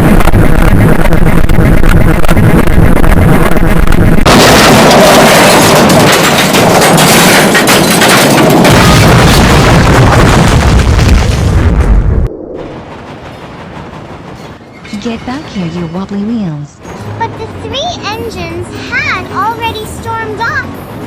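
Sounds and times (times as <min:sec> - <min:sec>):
explosion-like blasting and crackling: 0:00.0 - 0:14.2.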